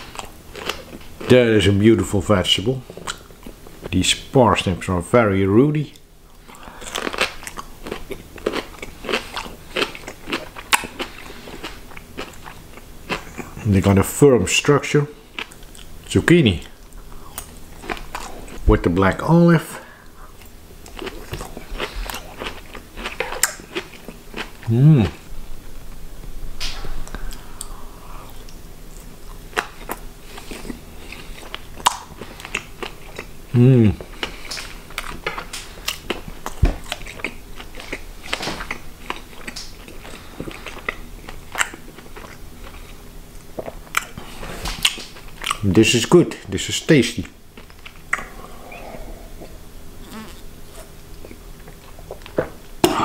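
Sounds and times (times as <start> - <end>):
person chewing with sharp clicks: 3.0 - 3.6, 5.9 - 13.6, 15.4 - 15.9, 16.6 - 18.6, 20.4 - 24.6, 31.4 - 33.3, 34.1 - 45.6, 47.2 - 48.4
wet mouth clicks: 47.9 - 48.4.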